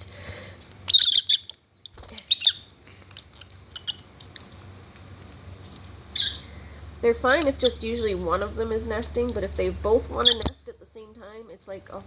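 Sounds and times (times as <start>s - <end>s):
lovebirds squawking: 0.9s - 4.1s, 6.1s - 6.7s, 10.1s - 10.6s.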